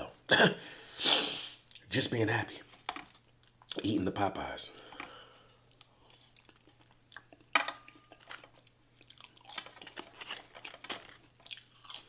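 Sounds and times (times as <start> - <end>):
chewing with crunchy bites: 4.8 - 12.0.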